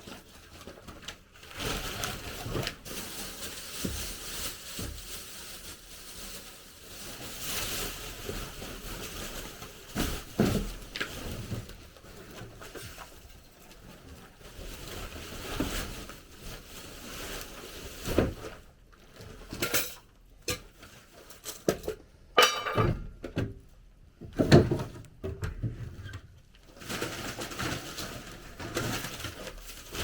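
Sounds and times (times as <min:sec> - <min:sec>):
objects clattering: 0:17.9 - 0:23.6, 0:26.7 - 0:30.0.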